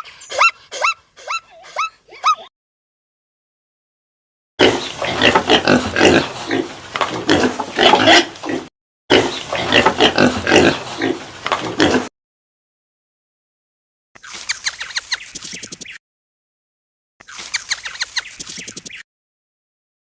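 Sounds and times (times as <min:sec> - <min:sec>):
pig oinking: 0:04.6 - 0:12.1.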